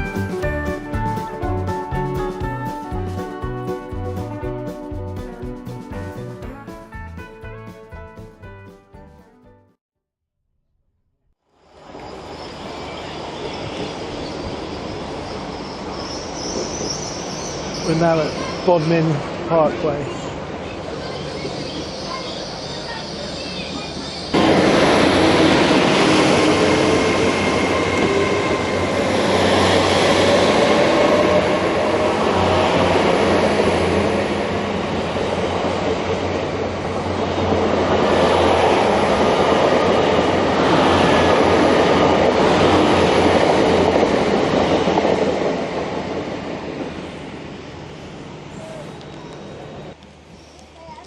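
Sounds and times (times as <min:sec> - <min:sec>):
train wheels rumbling on rails: 0:12.0 - 0:51.0.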